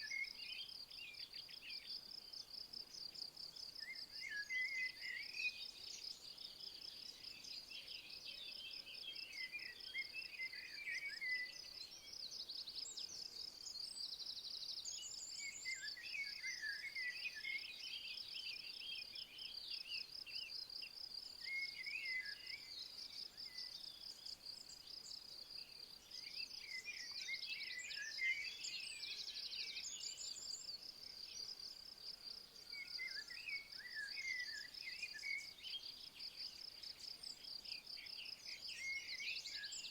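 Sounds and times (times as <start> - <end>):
songbird twittering: 26.0 - 31.8, 32.6 - 39.9.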